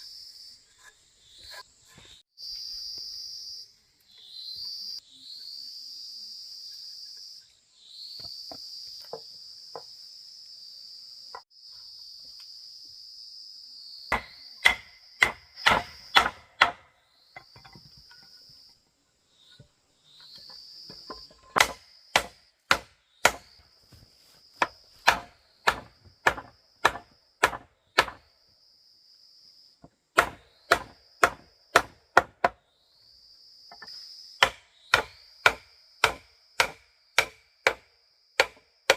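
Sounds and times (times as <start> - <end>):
insects buzzing: 0.0 - 38.9
sharp strikes on wood: 14.1 - 17.8, 21.0 - 23.6, 24.6 - 28.2, 30.2 - 32.6, 33.7 - 38.9.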